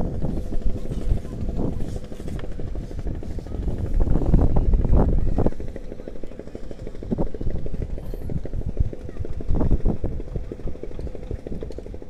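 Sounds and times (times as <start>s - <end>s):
wind buffeting the microphone: 0.0s - 12.0s.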